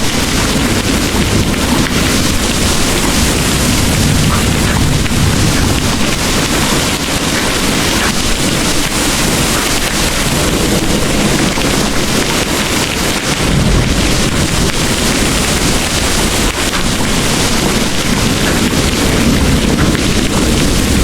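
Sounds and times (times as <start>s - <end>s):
heavy rain pouring: 0.0s - 21.0s
storm rumbling: 0.0s - 21.0s.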